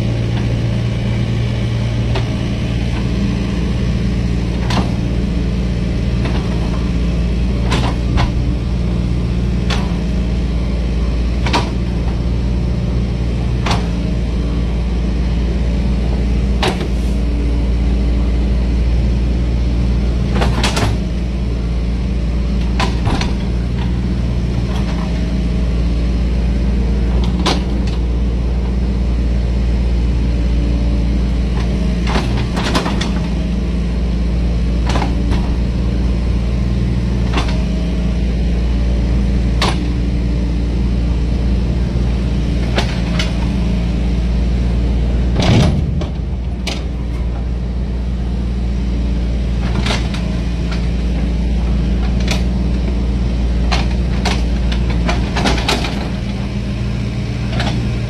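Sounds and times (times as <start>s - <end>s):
excavator diesel engine running: 0.0s - 58.0s
metal knocks and clanks: 45.0s - 48.6s.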